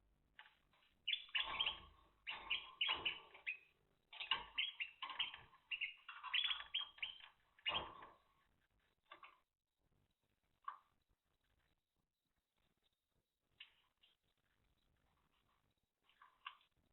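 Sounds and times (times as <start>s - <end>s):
canary chirping: 0.4s - 9.4s, 12.6s - 16.8s.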